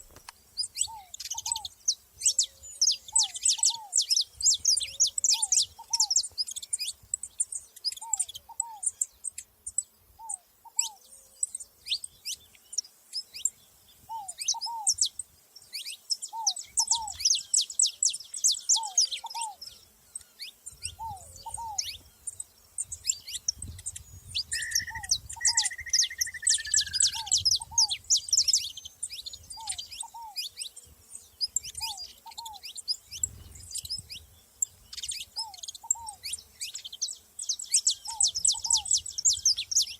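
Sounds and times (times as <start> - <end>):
finches chirping: 0.0 - 39.9
short wavering whistle: 24.5 - 27.2.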